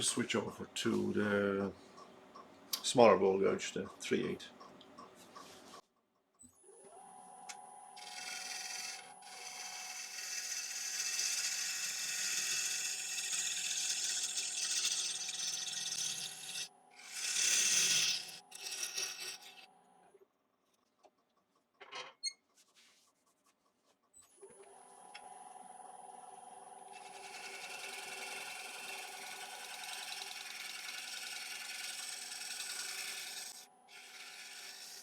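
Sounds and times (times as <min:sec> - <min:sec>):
wood lathe whining: 0:07.8 - 0:19.7, 0:26.8 - 0:35.0
gouge cutting wood hissing: 0:08.0 - 0:19.6, 0:27.0 - 0:35.0.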